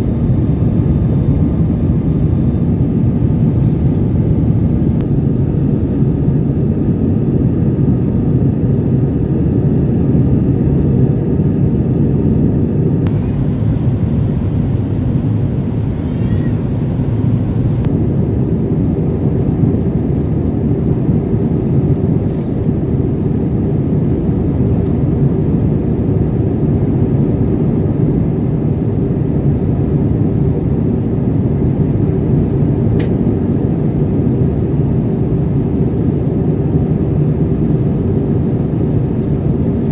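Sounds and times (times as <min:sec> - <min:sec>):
airplane cabin engine roar: 0:00.0 - 0:39.9
faint high hum: 0:13.0 - 0:22.7.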